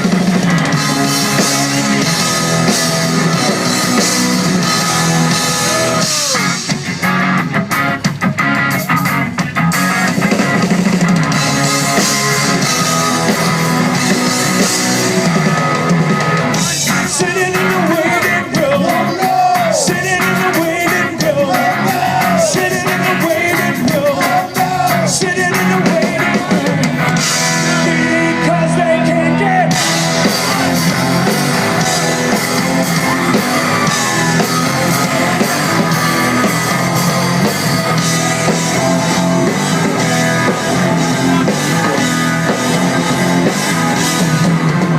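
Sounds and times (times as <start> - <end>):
drum kit: 0.0 - 44.9
electric guitar: 0.0 - 44.9
person singing: 16.5 - 44.3.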